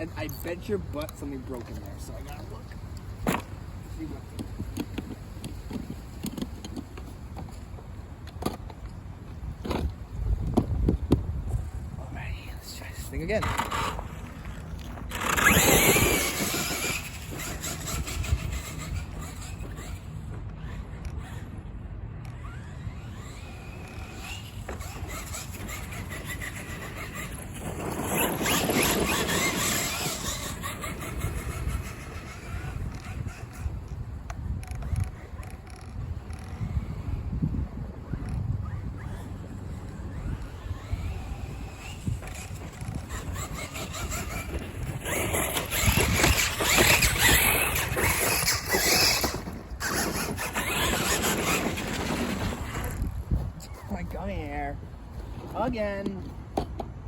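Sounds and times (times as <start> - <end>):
tire noise on dirt: 0.0 - 57.0
toy truck electric motor whining: 13.0 - 53.2.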